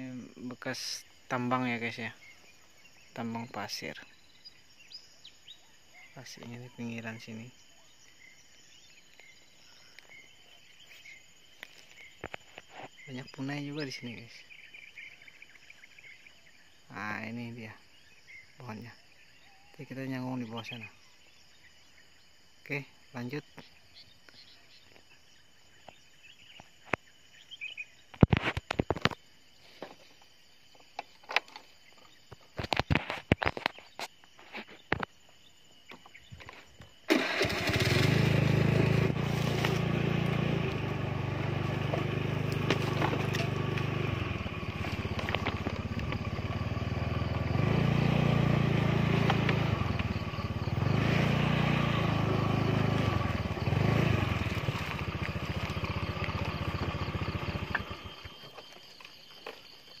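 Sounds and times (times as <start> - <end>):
small petrol engine running: 37.1 - 58.8.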